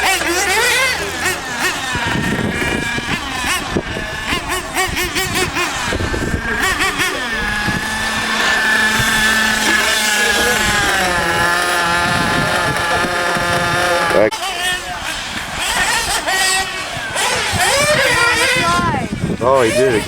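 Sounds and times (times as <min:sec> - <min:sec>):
small nitro engines revving: 0:00.0 - 0:20.0.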